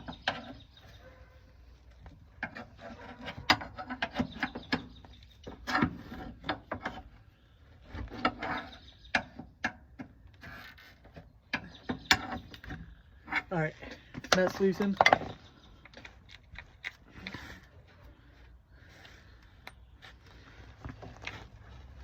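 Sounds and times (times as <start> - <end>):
metal clicks and knocks: 14.2 - 17.0.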